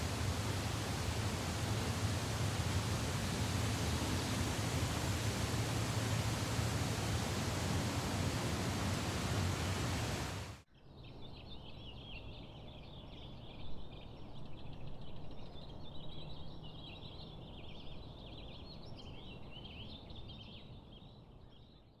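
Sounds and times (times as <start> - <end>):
background hiss: 0.0 - 10.6
songbirds chirping: 0.0 - 22.0.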